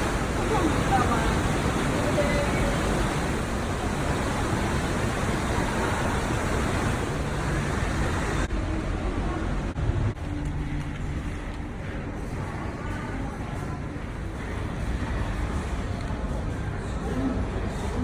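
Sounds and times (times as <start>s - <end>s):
steady rushing noise: 0.0s - 12.5s.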